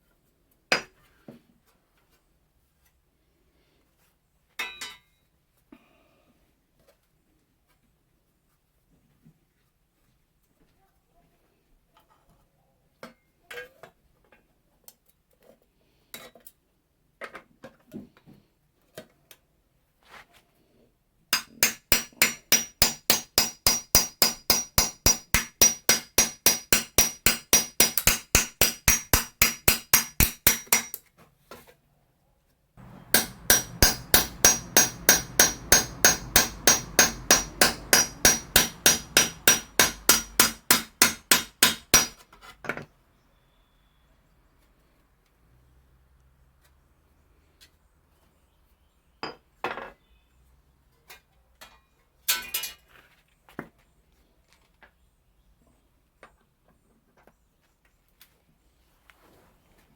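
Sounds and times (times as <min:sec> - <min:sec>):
hammer peening scythe blade: 0:21.4 - 0:31.0, 0:32.8 - 0:42.2
light hammer taps: 0:32.8 - 0:42.1.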